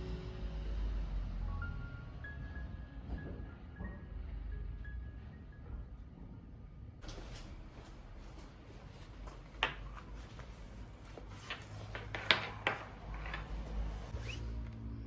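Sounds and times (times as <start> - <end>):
clicks and knocks of handling: 9.2 - 14.1.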